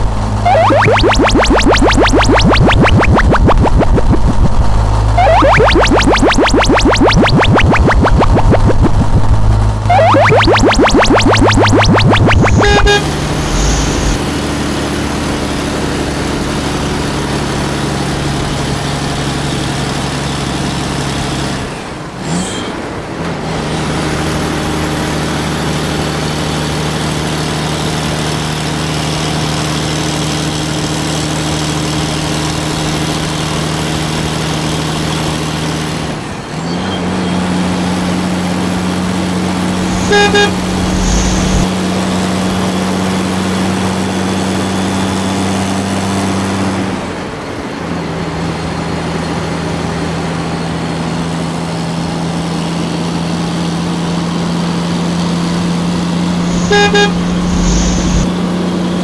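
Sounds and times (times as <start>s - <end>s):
horn toot: 39.9s - 41.7s, 56.5s - 58.3s.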